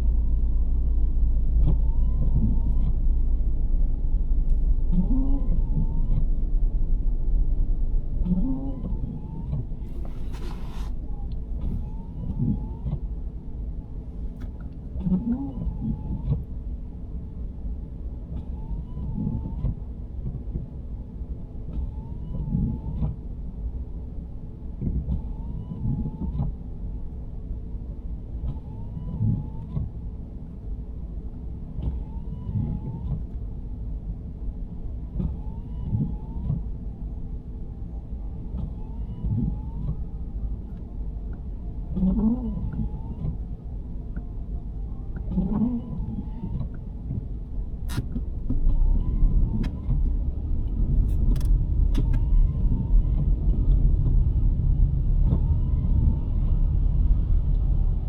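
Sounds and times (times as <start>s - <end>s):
road and engine rumble: 0.0s - 58.0s
windshield wipers squeaking: 8.8s - 13.0s, 45.1s - 50.2s, 50.9s - 53.2s.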